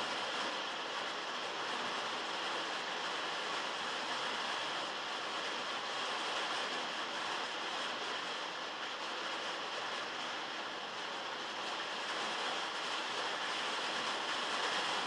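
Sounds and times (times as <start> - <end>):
heavy rain on a metal roof: 0.0 - 15.0.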